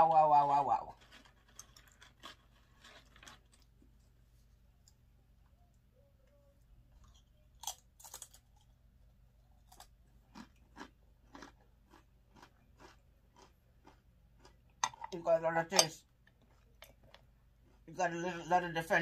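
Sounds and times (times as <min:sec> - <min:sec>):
tortilla chip crunching: 0:00.7 - 0:04.1, 0:07.0 - 0:14.6.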